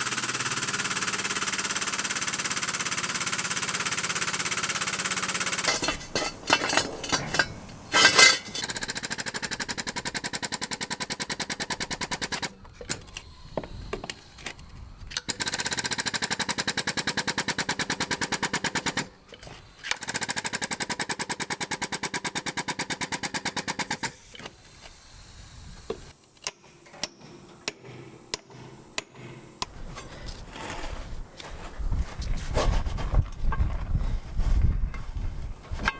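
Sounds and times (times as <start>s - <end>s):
impact wrench hammering: 0.2s - 8.7s.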